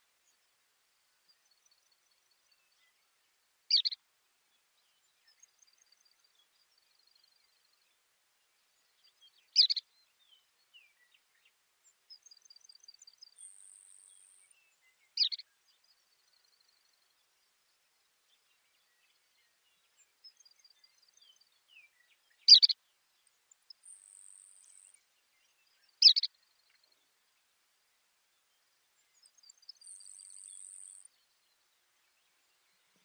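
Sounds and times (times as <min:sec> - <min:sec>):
sparrow singing high trill: 0:22.5 - 0:22.8.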